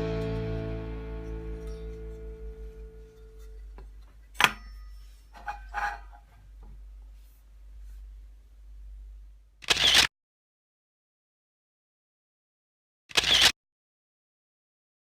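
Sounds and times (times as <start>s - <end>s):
low steady hum: 0.0s - 9.6s
rustling: 1.2s - 8.4s.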